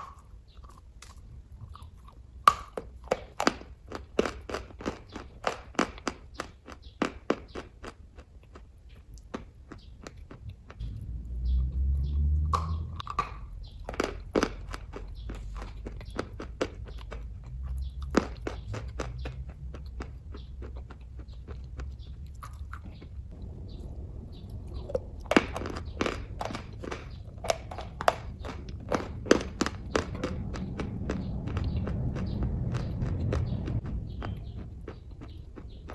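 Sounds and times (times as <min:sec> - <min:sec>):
wet mouth chewing clicks: 0:00.0 - 0:35.9
low rumble: 0:10.4 - 0:13.9, 0:21.6 - 0:35.9.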